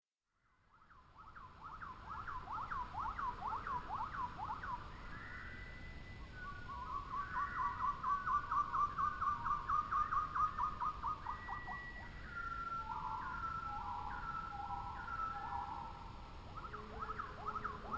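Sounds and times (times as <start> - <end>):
bird singing whistled notes: 0.7 - 17.9.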